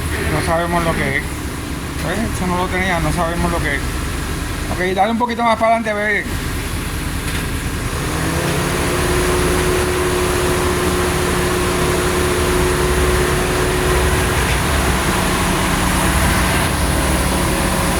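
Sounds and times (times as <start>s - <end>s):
truck engine running: 0.0s - 17.9s
steady whine: 8.4s - 17.9s.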